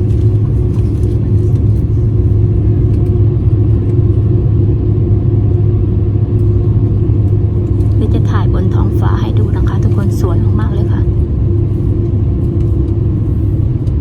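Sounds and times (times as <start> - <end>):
constant hum: 0.0 - 14.0
jet engine rumble in cabin: 0.0 - 14.0.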